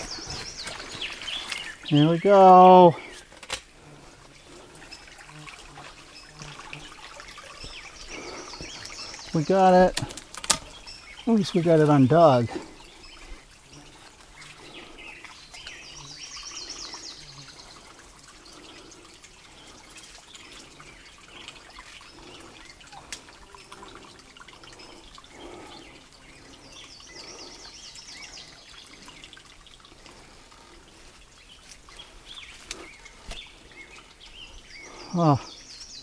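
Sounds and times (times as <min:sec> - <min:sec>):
bird chirping: 0:00.0 - 0:03.2, 0:06.2 - 0:13.3
faint water trickle: 0:00.1 - 0:36.0.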